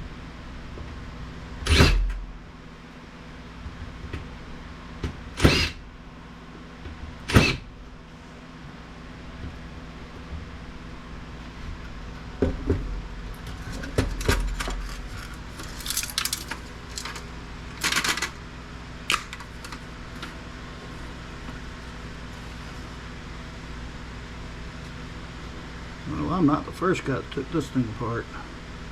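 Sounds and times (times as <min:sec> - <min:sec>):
steady low hum: 0:00.0 - 0:28.9
metal parts clinking on workbench: 0:14.5 - 0:17.2, 0:17.8 - 0:18.4.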